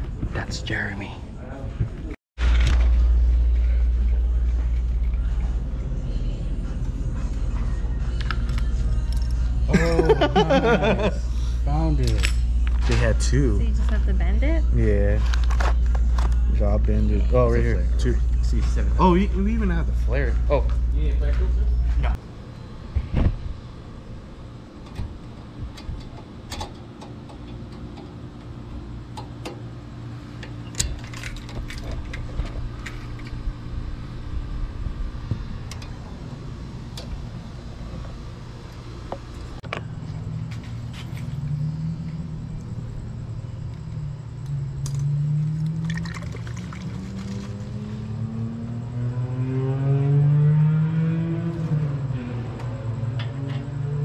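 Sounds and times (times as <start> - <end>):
steady low hum: 0.0 - 54.0
fluid pouring into reservoir: 45.8 - 47.4.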